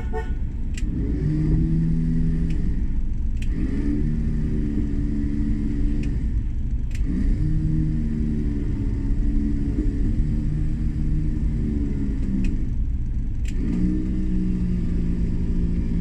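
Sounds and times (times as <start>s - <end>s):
engine low rumble: 0.0s - 16.0s.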